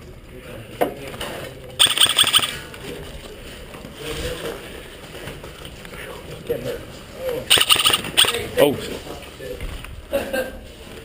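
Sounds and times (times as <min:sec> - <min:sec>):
airsoft rifle burst: 0:01.8 - 0:02.6, 0:07.5 - 0:08.5.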